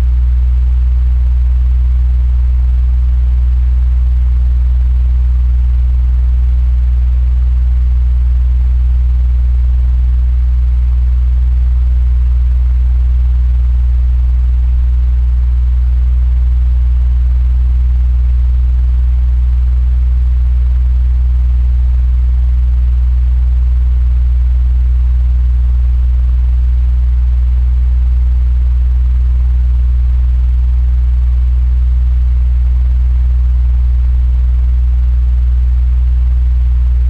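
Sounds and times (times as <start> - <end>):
electric fan humming: 0.0 - 0.2.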